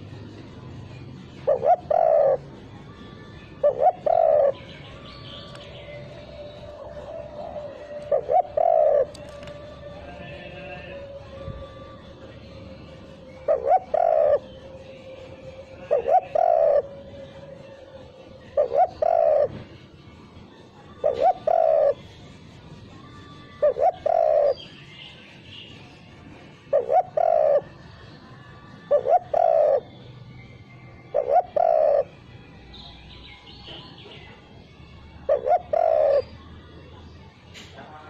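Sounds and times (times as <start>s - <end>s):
dove cooing: 0.8s - 5.0s, 5.9s - 24.7s, 26.3s - 30.0s, 31.0s - 32.3s, 34.6s - 36.5s.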